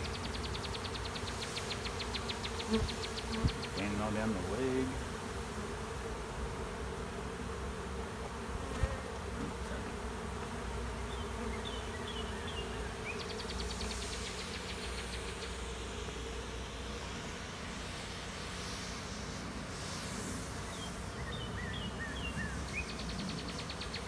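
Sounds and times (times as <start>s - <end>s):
buzzing hum of bee swarm: 0.0s - 24.0s.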